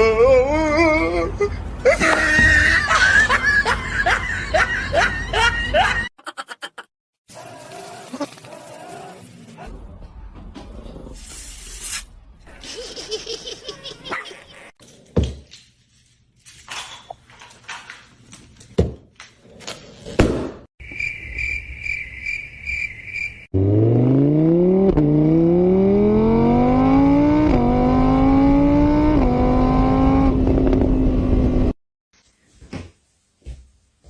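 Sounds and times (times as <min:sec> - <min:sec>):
car engine accelerating: 0:23.6 - 0:31.8.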